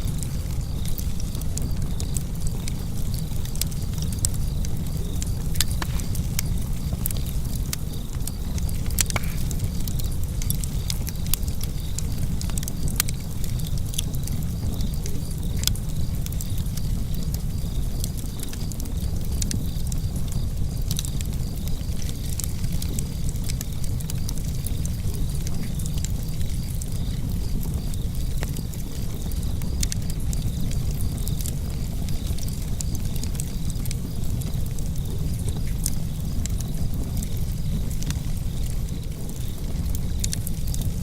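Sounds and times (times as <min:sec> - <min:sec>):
crackles and pops of fire: 0:00.0 - 0:41.0
wood fire rumbling: 0:00.0 - 0:41.0.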